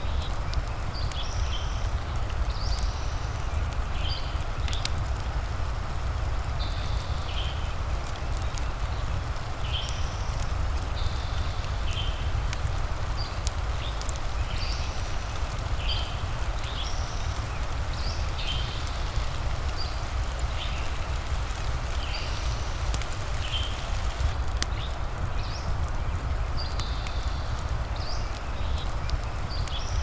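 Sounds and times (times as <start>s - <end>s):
rain hiss: 0.0s - 30.0s
sharp crackles: 0.0s - 30.0s.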